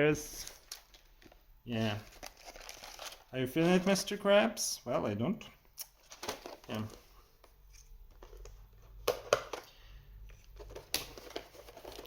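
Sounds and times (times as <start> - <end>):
packaging rustling and crinkling: 0.3 - 4.2, 6.0 - 7.1, 10.5 - 12.0.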